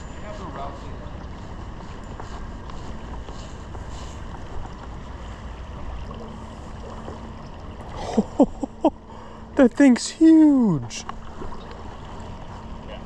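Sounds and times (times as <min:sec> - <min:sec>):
stream running over rocks: 0:09.6 - 0:13.0.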